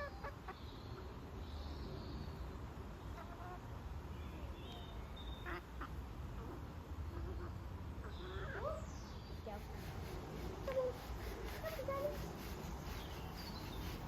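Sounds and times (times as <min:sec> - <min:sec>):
poultry calling and squawking: 0:00.0 - 0:01.2, 0:03.1 - 0:03.7, 0:05.3 - 0:14.0.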